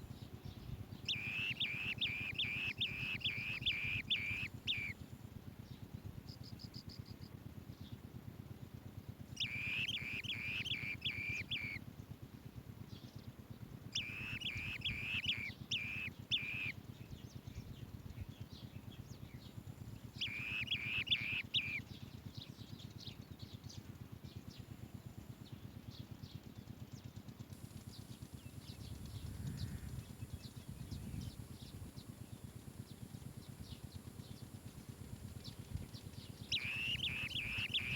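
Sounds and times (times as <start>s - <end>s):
bee-eaters calling: 0.4s - 5.0s, 9.4s - 11.9s, 13.9s - 22.7s, 27.8s - 37.9s.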